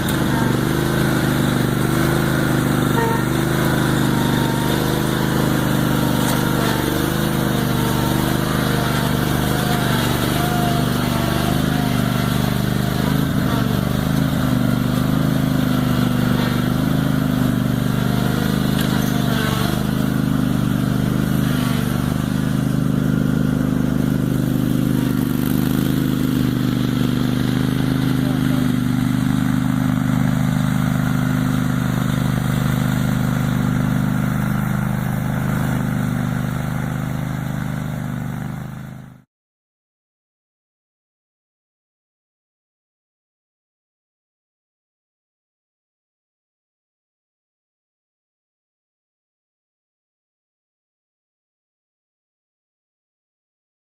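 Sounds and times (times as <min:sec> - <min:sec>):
garden tractor engine running: 0:00.0 - 0:39.2.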